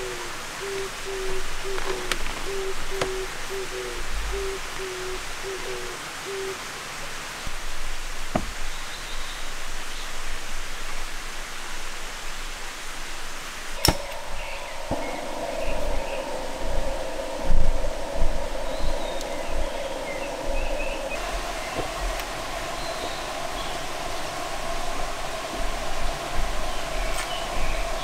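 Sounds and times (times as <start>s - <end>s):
bird hooting: 0.0s - 6.6s, 13.8s - 28.0s
background hiss: 0.0s - 28.0s
faint clicks: 19.2s - 19.4s.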